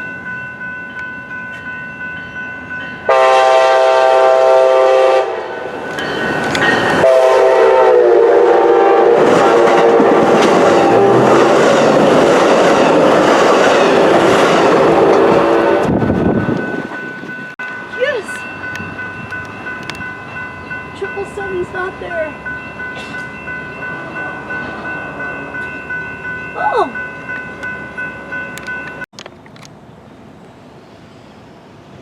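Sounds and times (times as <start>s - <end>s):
crossing bells ringing: 0.0s - 8.6s, 9.3s - 29.1s
train wheel and rail noise: 0.0s - 32.0s
train horn blasting: 3.1s - 5.8s, 7.0s - 11.6s, 14.6s - 16.0s.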